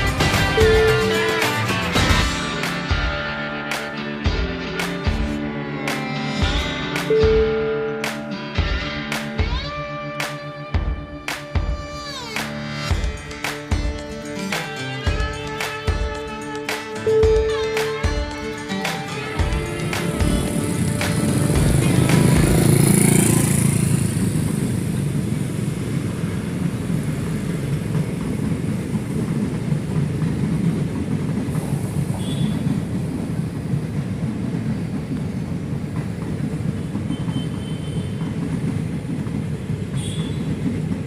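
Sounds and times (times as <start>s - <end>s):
small train rumbling on track: 0.0s - 9.7s, 11.7s - 41.0s
train wheel squeals: 31.8s - 33.0s, 36.0s - 41.0s.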